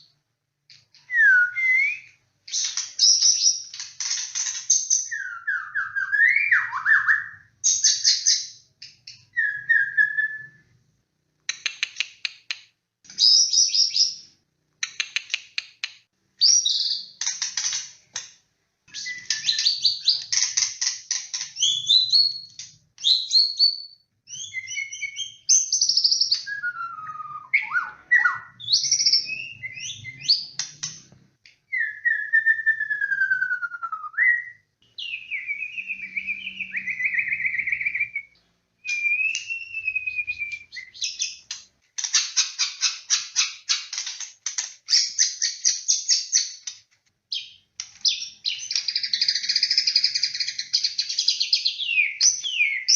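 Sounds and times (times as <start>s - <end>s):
bird singing whistles and trills: 1.0s - 3.8s, 4.7s - 10.7s, 16.4s - 17.2s, 18.9s - 20.4s, 21.6s - 30.6s, 31.7s - 41.5s, 47.3s - 52.9s.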